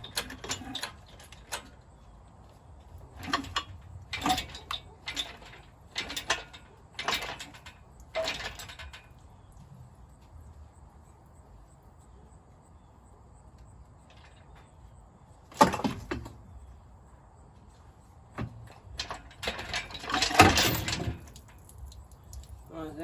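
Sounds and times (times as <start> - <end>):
metal parts and tools clanking: 0.0 - 1.8, 3.0 - 9.5, 15.5 - 16.4, 18.4 - 22.6.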